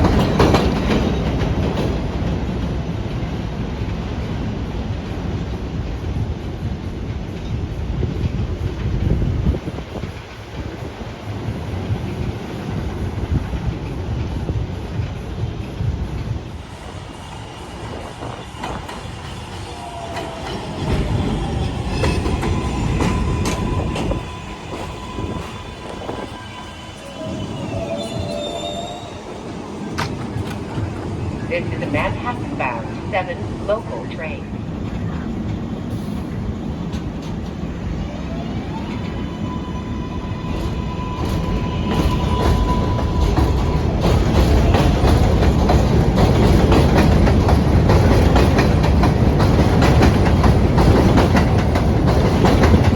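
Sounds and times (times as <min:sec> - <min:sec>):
train wheels clacking over rail joints: 0:00.0 - 0:03.3, 0:17.7 - 0:27.1, 0:40.4 - 0:52.9
train heavy rumble: 0:00.0 - 0:52.9
train motor whine: 0:17.2 - 0:29.4.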